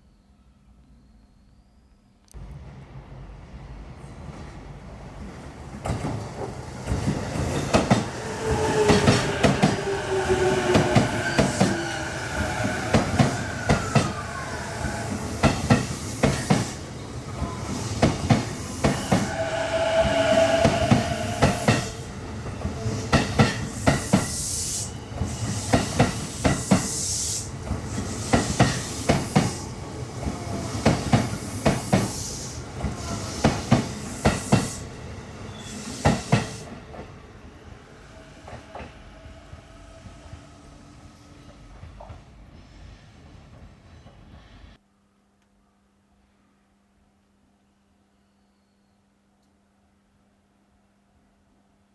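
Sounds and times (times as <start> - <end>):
train motor whining tones: 7.5 - 23.3.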